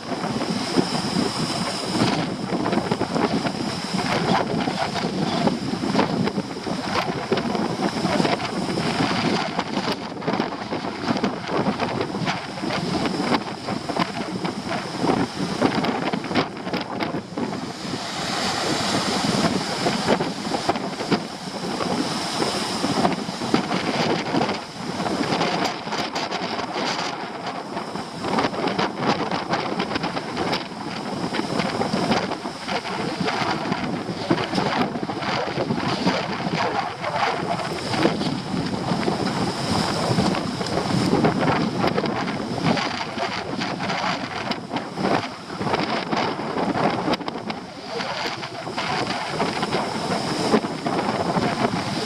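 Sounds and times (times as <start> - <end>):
surf on rocky shore: 0.0 - 52.0
wind buffeting microphone: 0.0 - 52.0.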